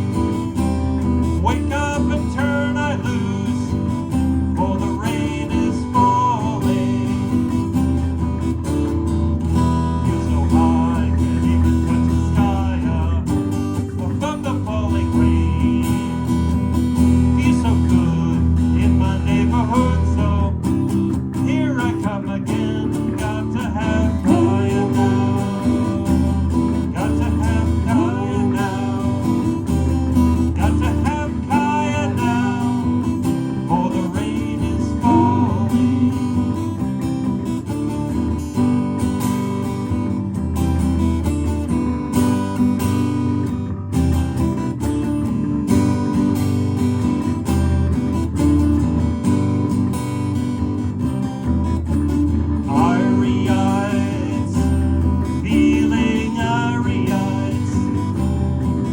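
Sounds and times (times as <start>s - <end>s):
heavy bass line: 0.0s - 58.9s
strummed guitar: 0.0s - 58.9s.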